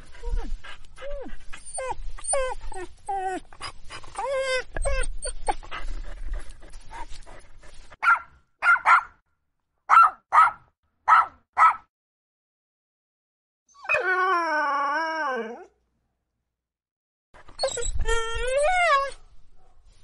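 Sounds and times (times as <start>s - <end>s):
dog yelping and whining: 0.2s - 5.7s, 13.7s - 15.7s, 17.4s - 19.2s
dog barking: 8.0s - 9.2s, 9.9s - 11.9s, 19.6s - 19.9s.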